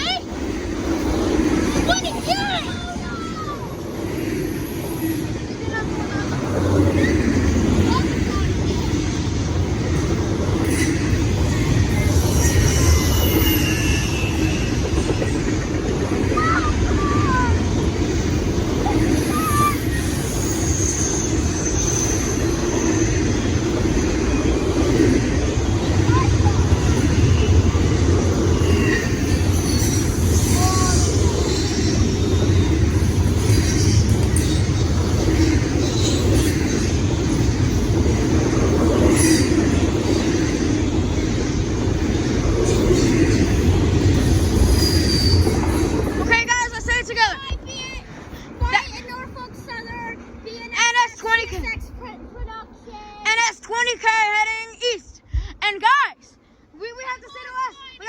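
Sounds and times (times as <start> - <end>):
freight train rumbling: 0.0 - 55.0
high wheel squeal: 10.6 - 15.7, 18.2 - 24.6, 26.1 - 37.9, 41.2 - 46.5
faint high squeal: 11.9 - 15.0, 19.1 - 23.1, 44.5 - 46.0.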